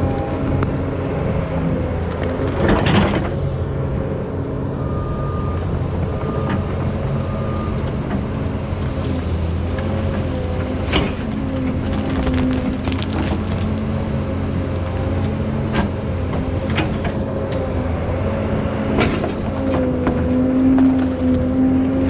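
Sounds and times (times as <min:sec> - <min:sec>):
excavator diesel engine running: 0:00.0 - 0:22.0
sharp cracks and knocks: 0:08.8 - 0:14.2, 0:18.9 - 0:21.4.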